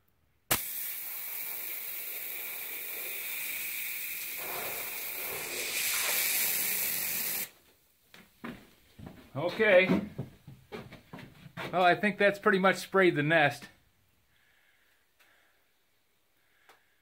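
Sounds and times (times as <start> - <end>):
aerosol spray hissing: 0.5 - 7.5.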